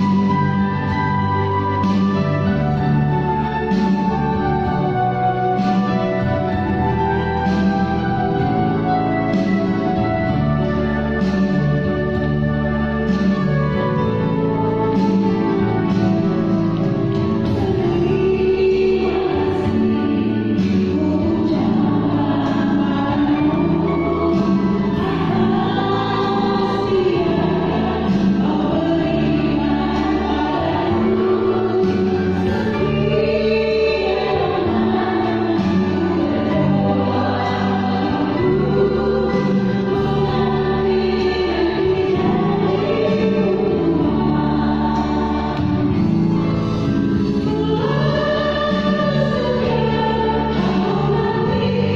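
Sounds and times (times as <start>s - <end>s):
choir singing in harmony: 0.0s - 51.9s.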